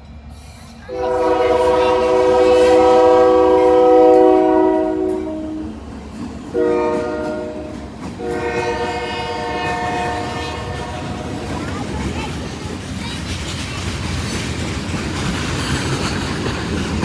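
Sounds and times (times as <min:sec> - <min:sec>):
train rumbling past: 0:00.0 - 0:17.0
locomotive air horn blasts: 0:00.9 - 0:05.8, 0:06.5 - 0:11.6.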